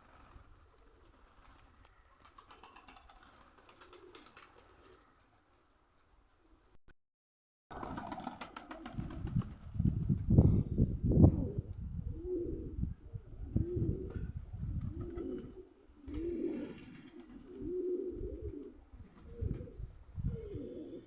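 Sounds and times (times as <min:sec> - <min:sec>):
pigeons cooing: 0:11.3 - 0:21.0.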